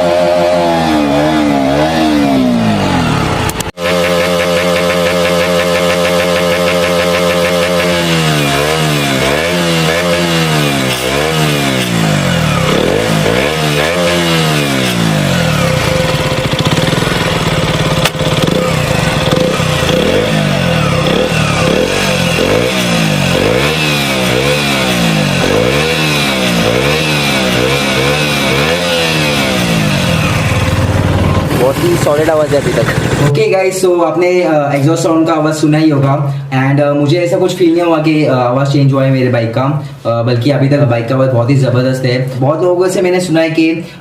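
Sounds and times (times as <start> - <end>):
motorcycle engine revving: 0.0 - 34.4.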